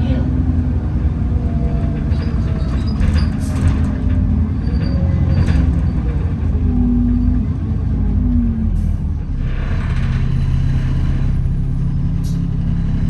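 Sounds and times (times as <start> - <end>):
bus drivetrain rumble and whine: 0.0 - 13.0
brief rattles: 1.4 - 7.2.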